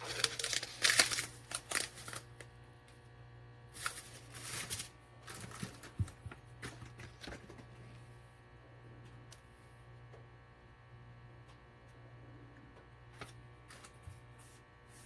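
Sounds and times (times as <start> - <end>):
steady low hum: 0.0 - 15.0
rustling of objects handled: 3.8 - 7.9.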